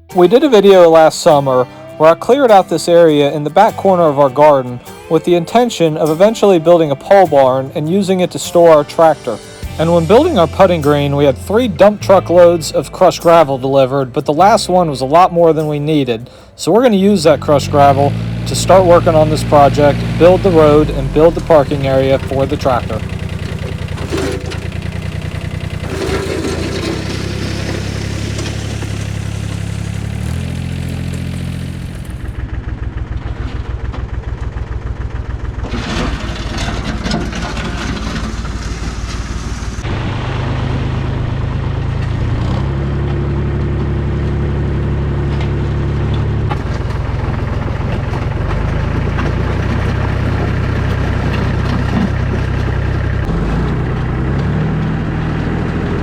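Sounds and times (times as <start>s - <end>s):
tractor diesel engine running: 0.0s - 56.0s
box blade grading gravel: 17.2s - 32.4s, 35.6s - 39.8s.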